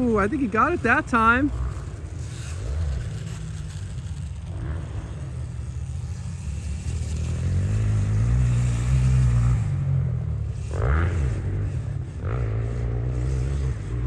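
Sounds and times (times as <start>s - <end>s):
electric motor hum: 0.0s - 9.6s.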